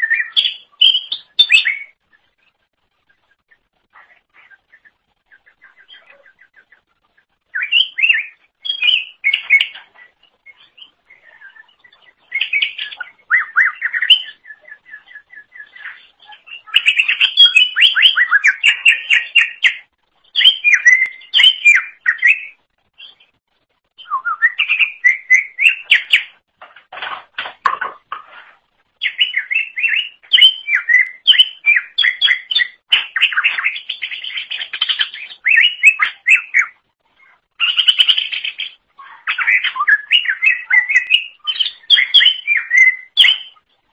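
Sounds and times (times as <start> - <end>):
bird singing chirps and trills: 0.0 - 23.4, 24.0 - 26.4, 29.0 - 43.7.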